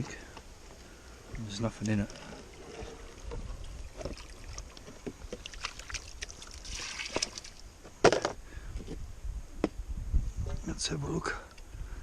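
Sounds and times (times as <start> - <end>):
water splashing: 1.3 - 7.7.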